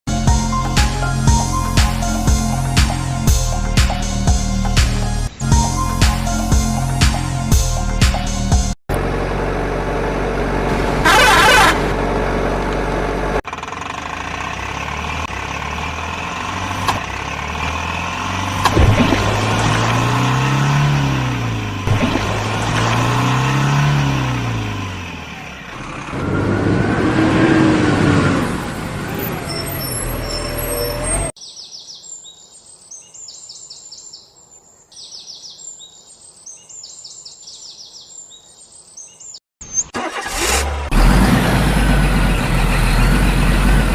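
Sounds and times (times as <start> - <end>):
vehicle engine revving: 8.9 - 31.4, 40.0 - 43.9
high bird chirps: 29.4 - 34.3, 34.9 - 40.0.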